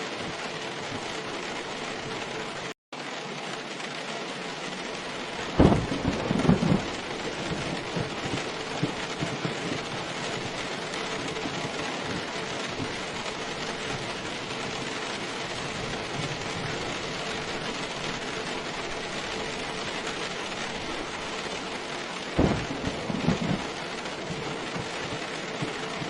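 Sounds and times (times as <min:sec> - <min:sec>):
steady rain: 0:00.0 - 0:26.0
thunder clap: 0:05.4 - 0:21.6, 0:22.2 - 0:26.0.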